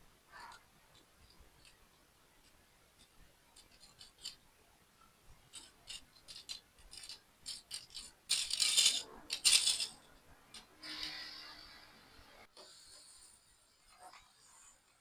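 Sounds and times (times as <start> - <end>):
plastic toy pieces clicking: 2.4 - 4.4, 5.5 - 11.2
loose plastic parts rattling: 5.5 - 10.7.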